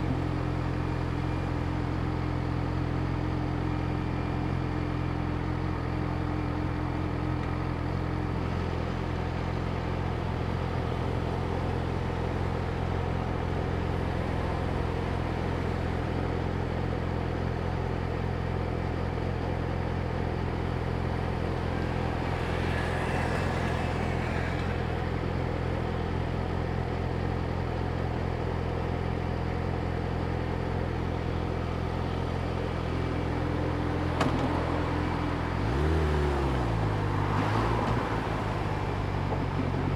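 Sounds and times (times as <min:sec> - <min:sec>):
vehicle passing: 0:21.8 - 0:25.1
motorcycle engine idling: 0:23.4 - 0:34.2.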